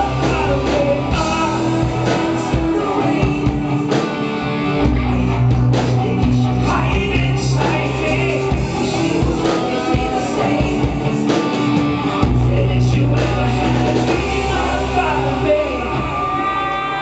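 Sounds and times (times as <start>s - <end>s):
guitar: 0.0s - 17.0s
live rock band playing: 0.0s - 17.0s
sustained bass notes: 0.0s - 17.0s.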